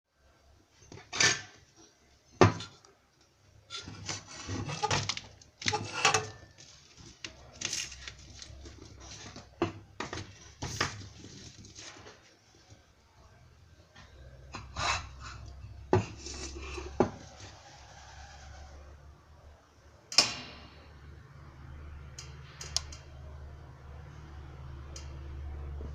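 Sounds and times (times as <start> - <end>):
scraping and rubbing: 3.7 - 9.6.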